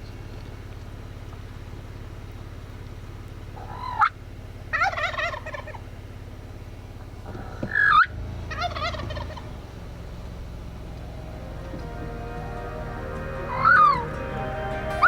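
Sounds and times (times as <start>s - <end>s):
truck engine idling: 0.0s - 15.0s
turkey gobbling: 3.6s - 5.9s, 7.4s - 15.0s.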